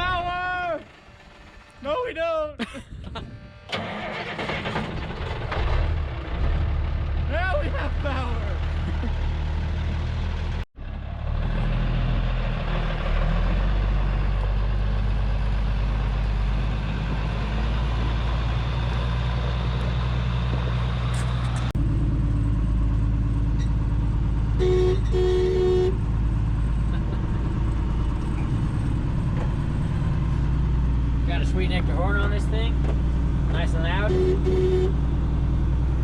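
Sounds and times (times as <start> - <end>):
truck engine running: 0.0 - 1.9, 3.2 - 36.0
truck horn blasts: 3.2 - 3.9, 24.5 - 26.1, 33.8 - 35.1.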